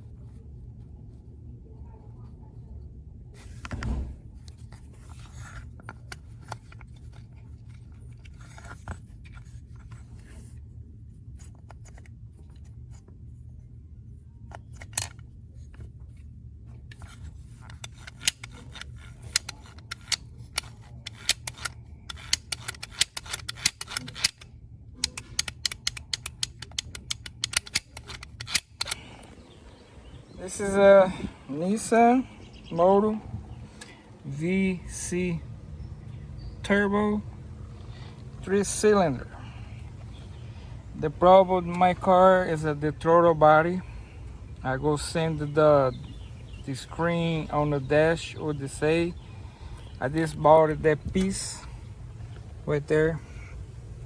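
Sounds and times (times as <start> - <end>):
steady low hum: 0.0 - 54.0
clicks of small hard parts: 16.9 - 29.4.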